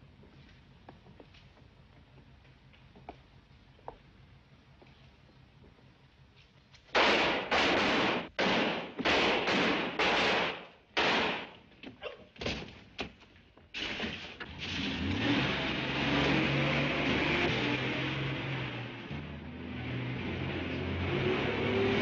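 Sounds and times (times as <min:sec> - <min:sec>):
rapid loud bangs: 0:06.9 - 0:11.6
car engine starting and running: 0:13.8 - 0:22.0.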